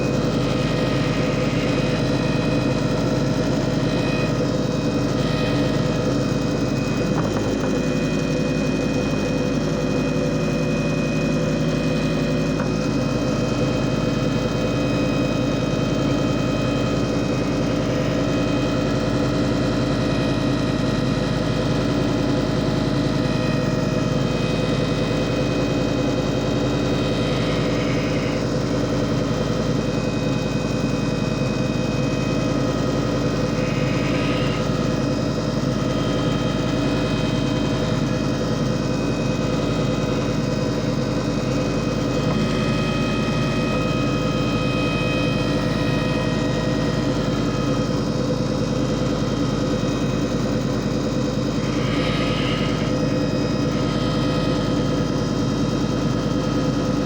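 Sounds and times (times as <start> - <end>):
machine motor humming: 0.0 - 57.0.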